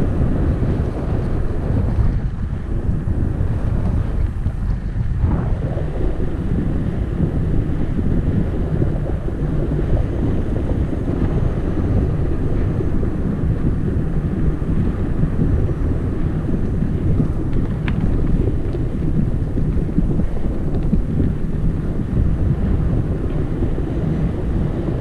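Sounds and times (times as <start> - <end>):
wind buffeting microphone: 0.0 - 25.0
faint clicks: 16.6 - 18.8, 20.7 - 21.4.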